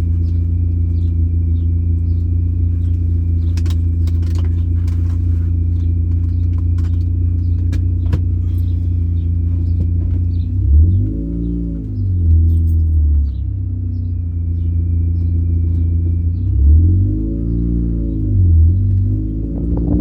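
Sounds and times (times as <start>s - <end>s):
car engine running: 0.0s - 20.0s
light clicks and rattles: 2.2s - 8.8s.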